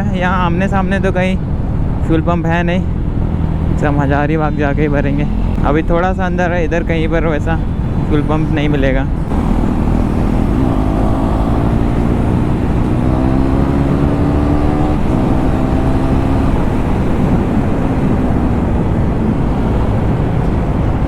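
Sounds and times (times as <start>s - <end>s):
motorcycle engine running: 8.6s - 21.0s.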